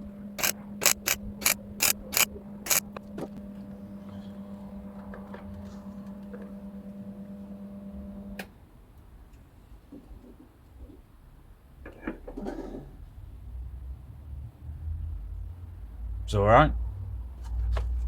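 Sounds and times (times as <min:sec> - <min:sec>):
electrical hum: 0:00.0 - 0:08.4
welding crackling zaps: 0:00.4 - 0:03.0.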